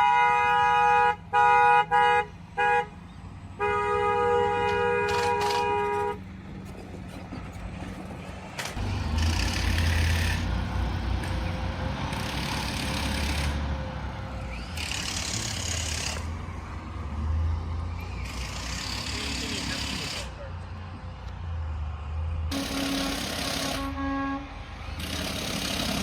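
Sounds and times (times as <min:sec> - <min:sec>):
vehicle horn: 0:00.0 - 0:06.3, 0:22.5 - 0:24.7
truck engine revving: 0:04.7 - 0:26.0.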